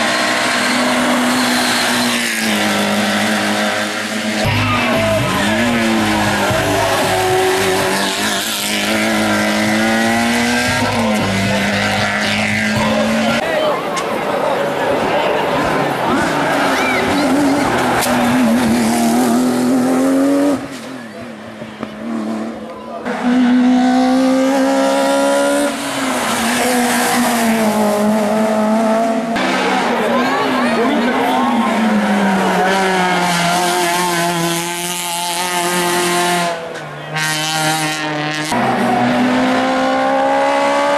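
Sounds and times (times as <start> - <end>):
race car engine accelerating: 0.0 - 13.4, 15.5 - 40.9.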